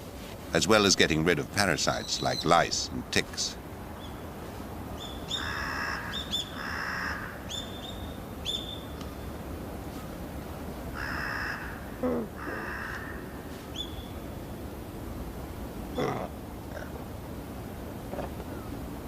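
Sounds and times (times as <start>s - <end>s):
small birds chirping: 1.7s - 2.9s, 3.9s - 9.3s, 13.6s - 14.6s
crow cawing: 5.3s - 7.6s, 10.9s - 13.5s.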